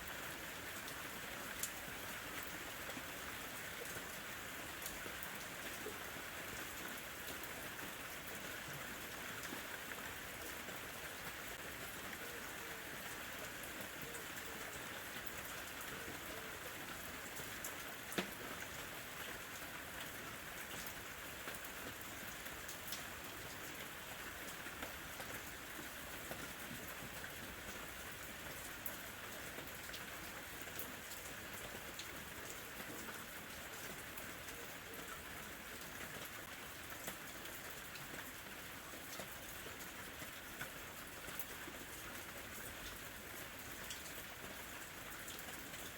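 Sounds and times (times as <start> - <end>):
rain falling: 0.0 - 45.9.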